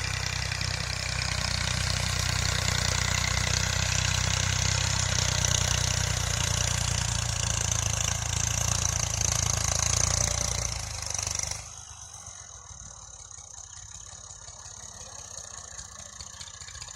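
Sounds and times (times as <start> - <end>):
tractor diesel engine idling: 0.0 - 16.9.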